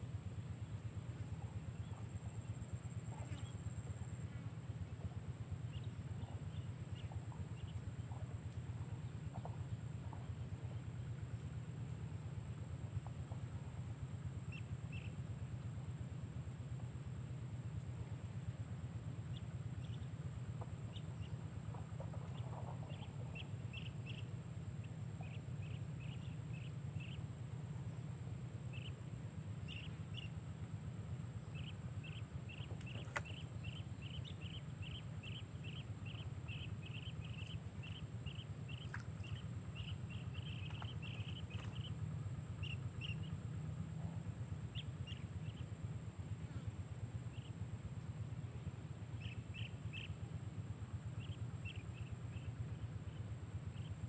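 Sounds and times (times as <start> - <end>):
steady low rumble: 0.0 - 54.0
bird chirping: 20.9 - 27.2, 28.7 - 29.0, 29.6 - 30.6, 31.4 - 43.4, 44.0 - 45.7, 49.2 - 50.2.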